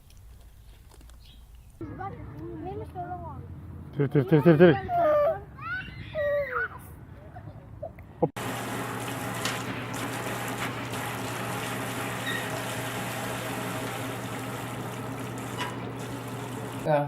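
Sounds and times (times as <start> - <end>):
water running from tap: 8.4 - 16.9.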